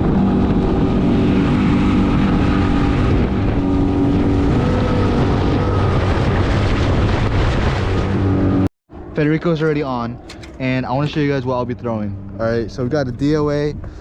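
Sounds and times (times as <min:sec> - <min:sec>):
wind on microphone: 0:00.0 - 0:08.7.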